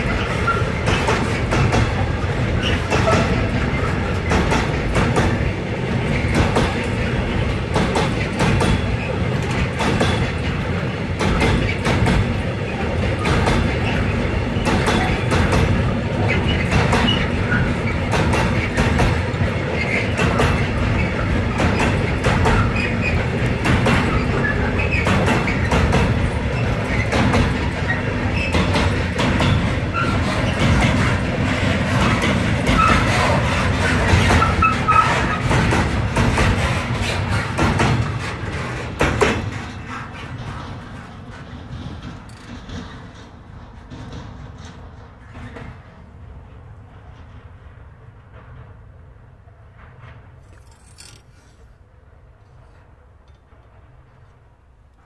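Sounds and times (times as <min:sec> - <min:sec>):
wheels clacking over rail joints: 0:00.0 - 0:55.0.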